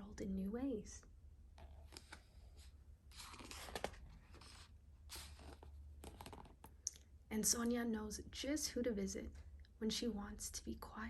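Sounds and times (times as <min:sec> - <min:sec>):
low steady hum: 0:00.0 - 0:11.0
paper rustling: 0:01.6 - 0:06.7.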